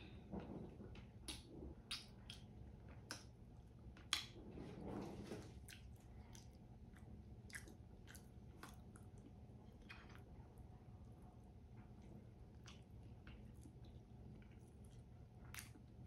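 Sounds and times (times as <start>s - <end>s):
mouth chewing food: 5.5s - 16.0s.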